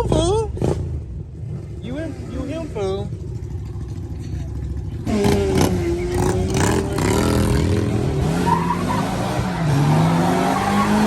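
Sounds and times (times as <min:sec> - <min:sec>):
car engine revving hard: 0:05.1 - 0:11.0
car tyres squealing: 0:05.1 - 0:11.0.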